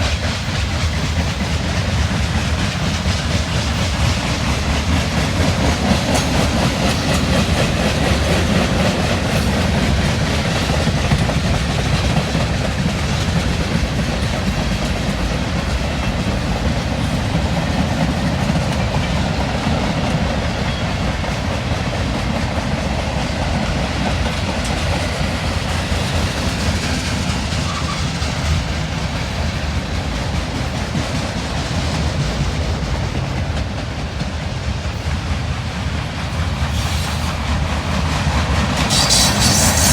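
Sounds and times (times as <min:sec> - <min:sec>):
train wheels clacking over rail joints: 0:00.0 - 0:39.9.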